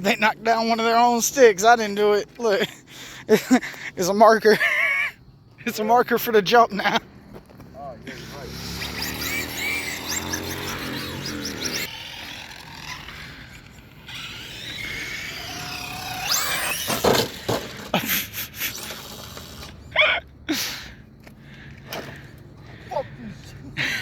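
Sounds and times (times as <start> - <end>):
electric motors whining: 8.0 - 19.9.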